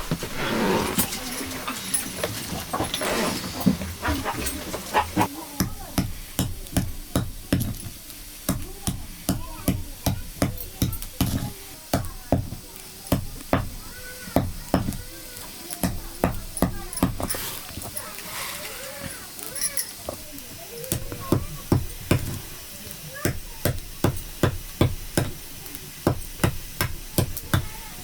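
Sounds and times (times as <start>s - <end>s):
faint voices: 0.0s - 28.0s.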